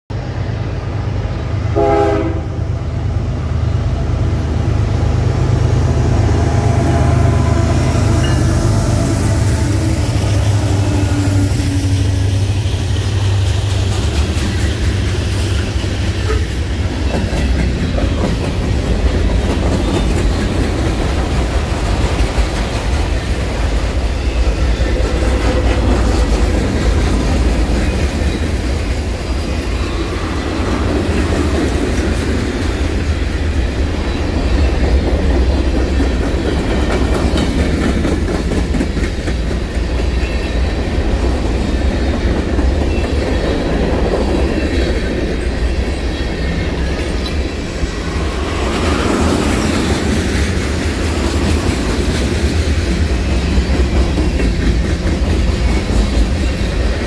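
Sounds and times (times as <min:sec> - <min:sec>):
freight train rumbling past: 0:00.1 - 0:57.0
train horn blast: 0:01.7 - 0:02.8, 0:05.9 - 0:12.4, 0:16.1 - 0:16.6
wheels clattering on rails: 0:12.4 - 0:57.0.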